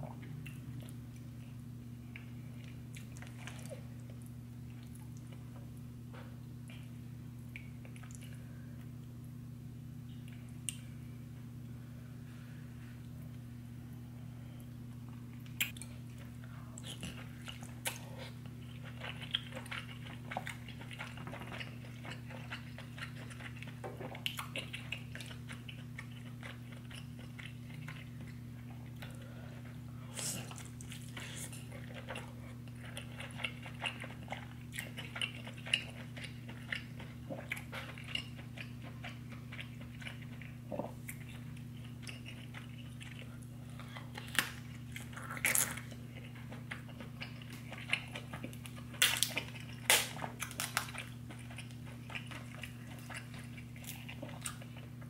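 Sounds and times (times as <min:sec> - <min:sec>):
steady low hum: 0:00.0 - 0:55.0
wet chewing and lip smacks: 0:07.5 - 0:08.4, 0:15.4 - 0:55.0.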